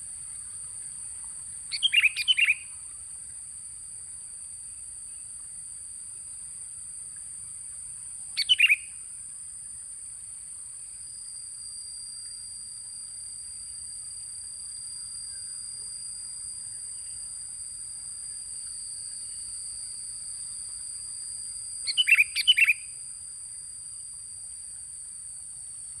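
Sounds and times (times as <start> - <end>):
bird call: 1.7 - 2.7, 8.4 - 9.0, 21.9 - 22.9.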